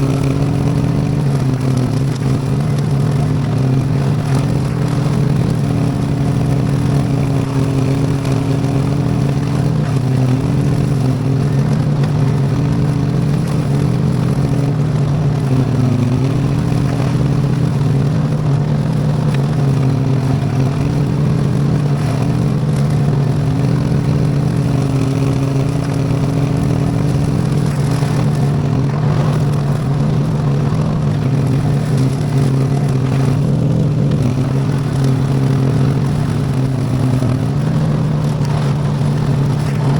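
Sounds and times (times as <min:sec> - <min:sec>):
clatter: 0:00.0 - 0:39.9
rotary cutter mowing: 0:00.0 - 0:39.9
tractor engine running under load: 0:00.0 - 0:39.9.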